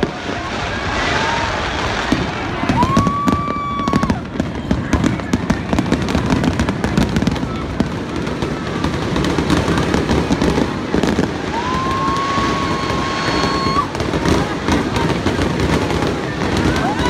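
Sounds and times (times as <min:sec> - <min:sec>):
firework crackles and pops: 0:00.0 - 0:17.0
whistling firework shell: 0:11.5 - 0:14.2.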